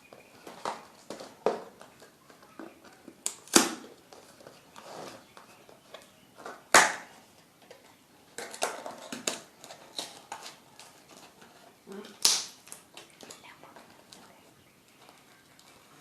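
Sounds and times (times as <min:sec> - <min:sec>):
sharp loud packaging crackles: 0:00.3 - 0:07.2, 0:08.3 - 0:13.6
packaging crinkling: 0:08.4 - 0:16.0.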